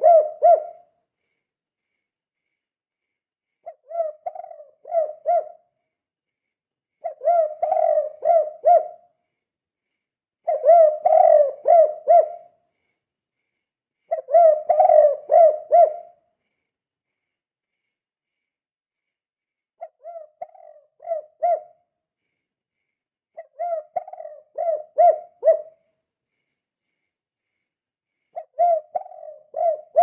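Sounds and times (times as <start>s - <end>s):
dove cooing: 0.0s - 0.9s, 3.6s - 5.7s, 7.0s - 9.1s, 10.4s - 12.5s, 14.1s - 16.2s, 19.8s - 21.7s, 23.4s - 25.8s, 28.3s - 30.0s.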